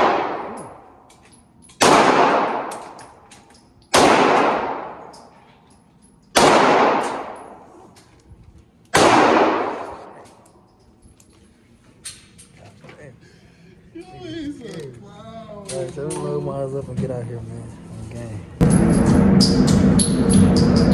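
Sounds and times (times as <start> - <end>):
gunshots with echo: 0.0 - 0.9, 1.8 - 3.0, 3.9 - 5.1, 6.4 - 7.7, 9.0 - 10.2.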